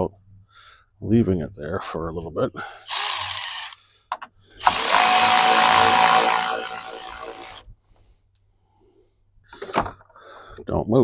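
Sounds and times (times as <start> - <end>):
power drill whining: 2.9 - 3.8, 4.6 - 7.6.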